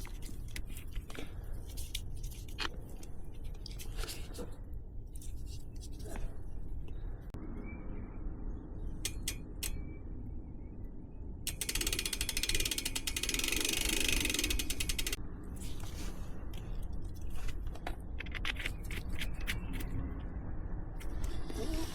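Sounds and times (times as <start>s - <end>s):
bicycle ratchet clicking: 9.0s - 9.8s, 11.5s - 15.2s.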